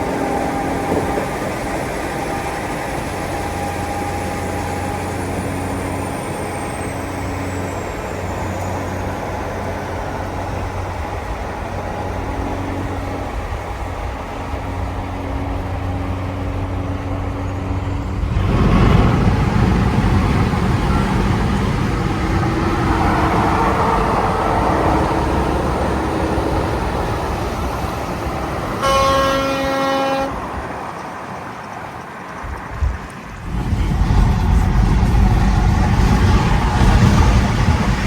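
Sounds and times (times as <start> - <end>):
truck engine passing: 0.0 - 38.0
truck horn blast: 20.0 - 30.8.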